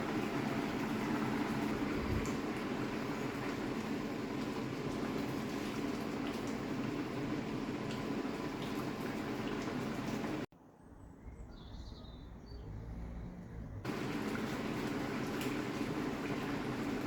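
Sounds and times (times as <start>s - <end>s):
pot simmering and bubbling: 0.0s - 10.5s, 13.8s - 17.0s.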